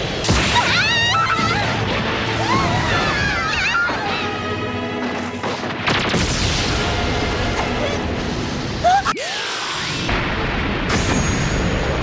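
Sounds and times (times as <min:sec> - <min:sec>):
soundtrack music: 0:00.0 - 0:09.3
crash sound effect: 0:09.8 - 0:12.0.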